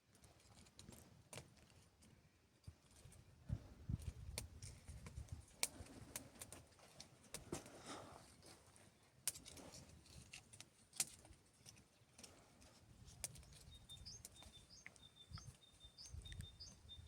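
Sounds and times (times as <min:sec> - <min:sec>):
bird chirping: 0:13.3 - 0:17.0.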